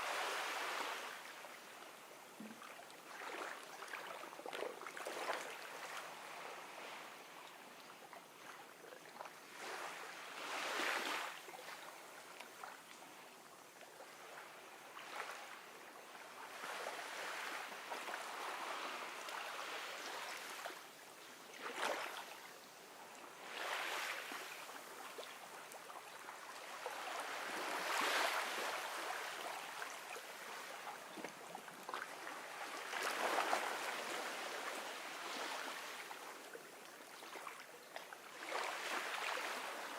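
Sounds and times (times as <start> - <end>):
ocean waves washing ashore: 0.0 - 1.6, 9.4 - 11.4, 16.4 - 20.7, 23.3 - 25.4, 26.6 - 31.1.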